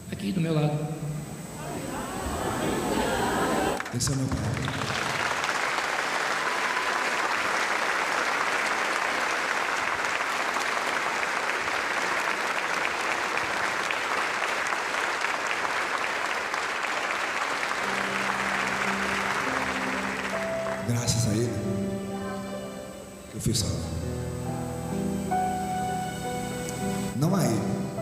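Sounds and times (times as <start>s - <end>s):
congregation applauding: 1.6s - 22.9s
sustained keyboard notes: 17.8s - 28.0s.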